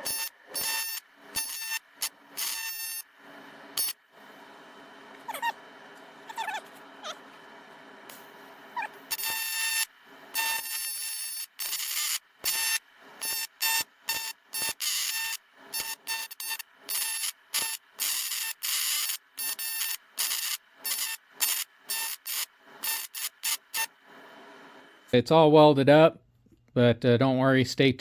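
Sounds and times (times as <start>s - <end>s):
welding arc buzzing: 0.0s - 4.5s, 7.8s - 24.7s.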